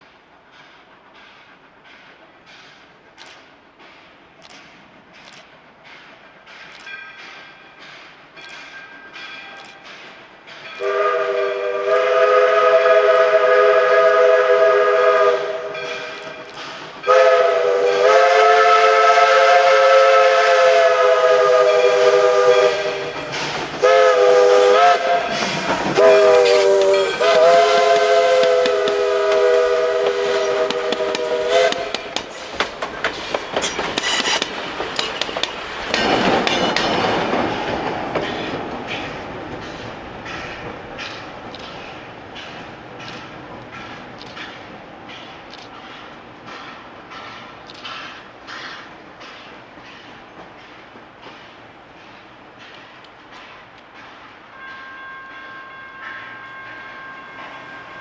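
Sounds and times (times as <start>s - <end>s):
steam hissing: 0.0s - 54.8s
steam locomotive chime whistle: 6.8s - 32.4s, 33.6s - 34.4s, 54.4s - 58.0s.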